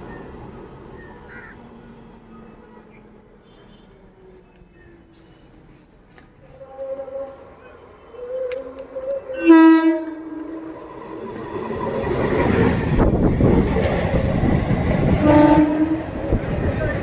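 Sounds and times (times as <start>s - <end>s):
train coaches rumbling past: 0.0s - 17.0s
train horn: 6.5s - 10.9s, 15.2s - 16.2s.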